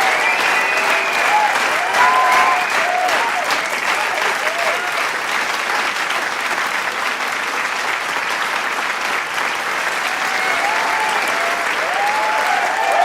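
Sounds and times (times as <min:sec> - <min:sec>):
shouts and whoops: 0:00.0 - 0:05.0, 0:10.1 - 0:13.0
crowd applauding: 0:00.0 - 0:13.0.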